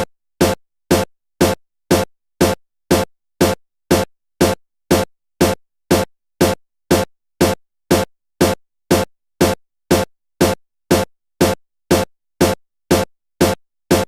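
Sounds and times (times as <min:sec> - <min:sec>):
electronic music with drum-machine beat: 0:00.0 - 0:14.0.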